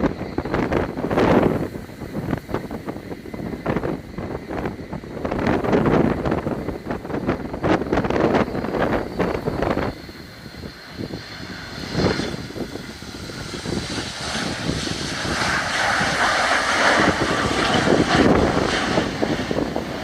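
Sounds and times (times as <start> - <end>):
jet engine rushing: 0.0 - 20.0
wind buffeting microphone: 0.0 - 20.0.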